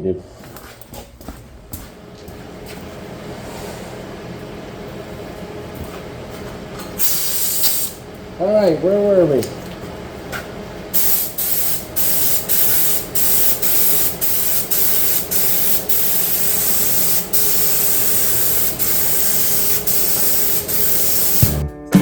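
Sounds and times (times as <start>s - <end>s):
paint spray gun hissing: 7.0s - 8.0s, 11.0s - 21.6s.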